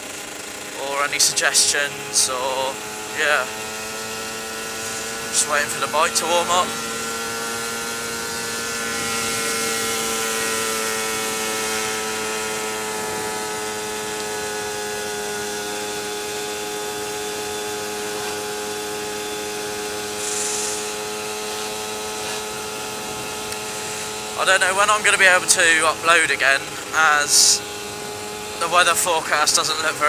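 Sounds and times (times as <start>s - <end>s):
two-stroke motorcycle engine running: 0.0s - 30.0s
rushes of high hiss: 20.2s - 20.9s.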